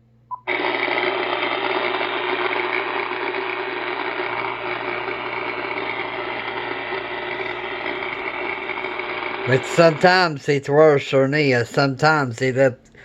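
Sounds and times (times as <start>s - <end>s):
radio static buzz with hum: 0.5s - 10.4s.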